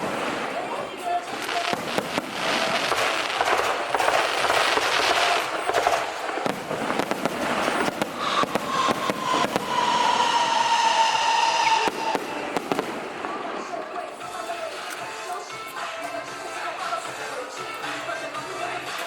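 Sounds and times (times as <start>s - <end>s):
firecrackers crackling: 0.0s - 19.0s
long high tone: 8.2s - 18.8s.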